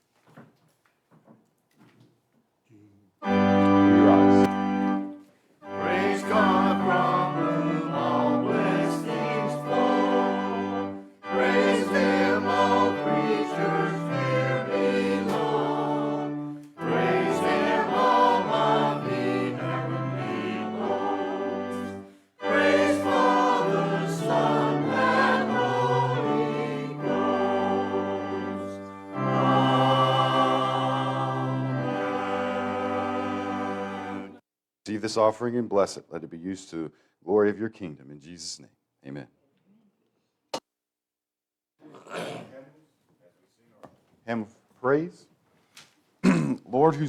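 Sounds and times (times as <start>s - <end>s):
choir singing a hymn: 3.2s - 34.4s
organ: 3.2s - 34.4s.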